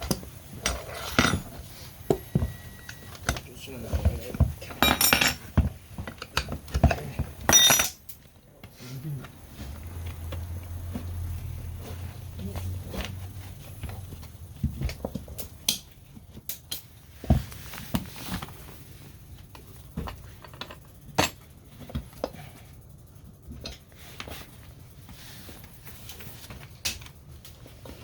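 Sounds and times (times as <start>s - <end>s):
metal tools clinking: 0.6s - 1.6s, 4.6s - 5.5s, 6.8s - 8.2s.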